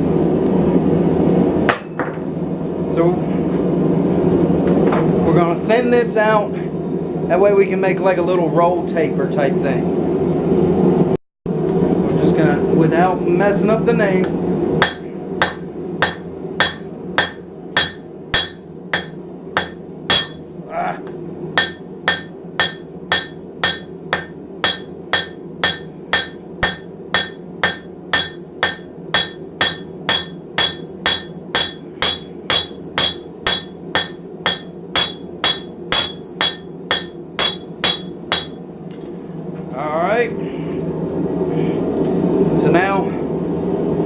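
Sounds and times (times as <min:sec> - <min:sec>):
steady low hum: 0:00.0 - 0:44.0
hammer ringing on anvil: 0:01.7 - 0:02.6, 0:14.8 - 0:20.7, 0:21.6 - 0:39.0.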